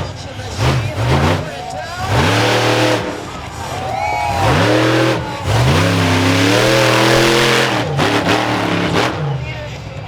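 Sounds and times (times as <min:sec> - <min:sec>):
monster truck engine revving: 0:00.0 - 0:09.8.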